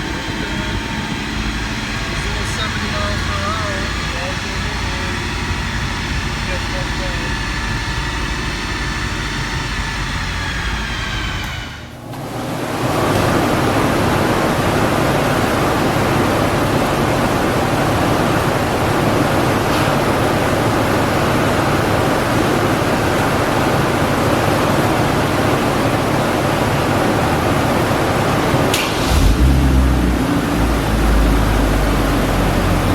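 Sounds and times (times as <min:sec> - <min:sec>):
air rushing: 0:28.7 - 0:31.6.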